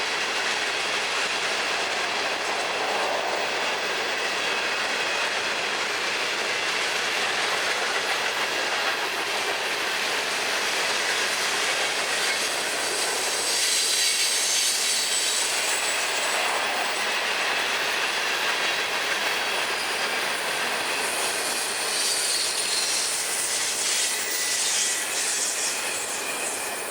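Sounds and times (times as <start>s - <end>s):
train wheels running on rails: 0.0s - 26.9s
high wheel squeals: 11.4s - 16.8s, 19.5s - 26.9s.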